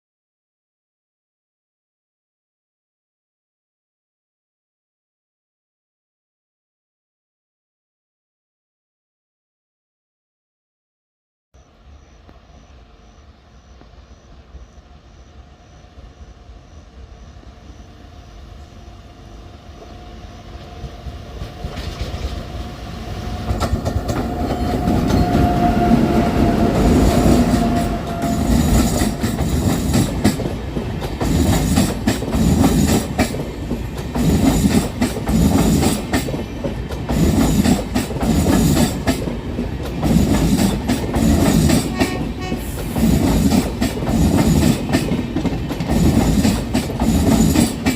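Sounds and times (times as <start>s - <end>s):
train rumble: 11.6s - 47.9s.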